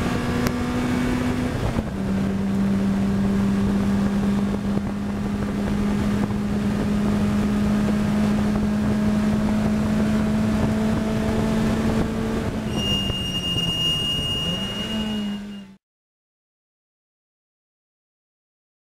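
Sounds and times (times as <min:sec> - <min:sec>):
race car engine running: 0:00.0 - 0:12.7
wind and road noise: 0:00.0 - 0:15.8
thin high whine: 0:12.6 - 0:15.8.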